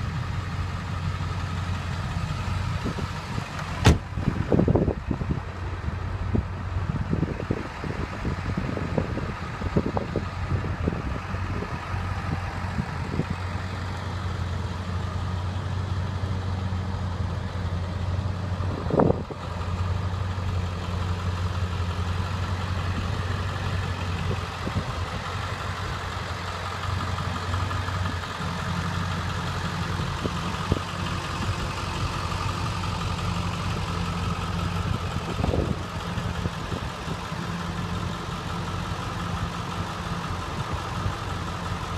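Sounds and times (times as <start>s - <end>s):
diesel engine idling: 0.0s - 41.9s.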